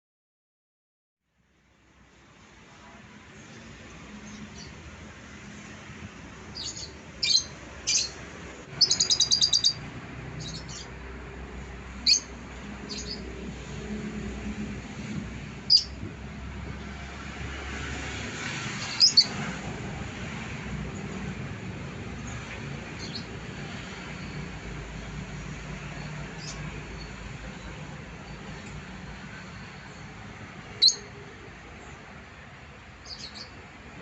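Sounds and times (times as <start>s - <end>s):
lovebird chirping: 6.6s - 8.2s, 8.8s - 9.8s, 10.4s - 10.9s, 12.0s - 12.3s, 12.9s - 13.3s, 15.7s - 16.0s, 18.8s - 19.4s, 30.7s - 31.2s, 33.0s - 33.6s.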